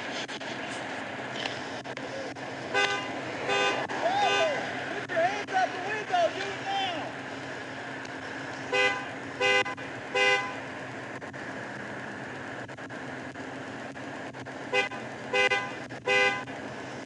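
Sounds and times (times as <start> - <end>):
vehicle horn blasts: 2.7 - 4.6, 8.7 - 10.6, 14.7 - 16.5.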